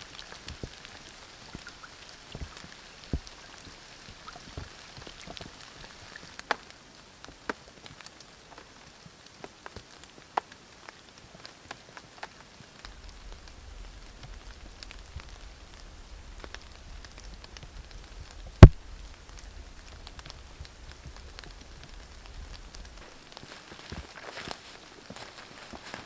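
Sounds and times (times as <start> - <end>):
raindrops tapping: 0.0 - 26.0
faint low rumble: 12.8 - 24.1.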